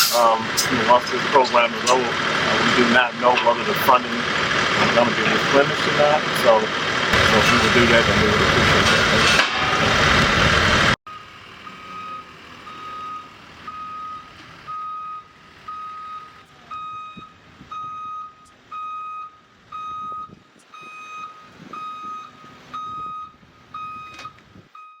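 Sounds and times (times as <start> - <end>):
vehicle backup alarm beeping: 11.1 - 25.0.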